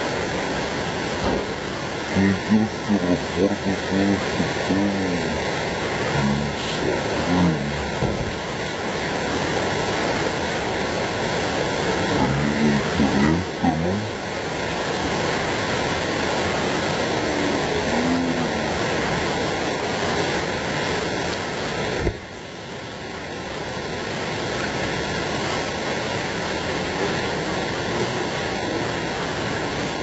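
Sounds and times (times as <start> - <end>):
torrential rain and flood water: 0.0 - 30.0
faint voices: 1.2 - 8.4, 12.0 - 14.2, 16.9 - 19.0.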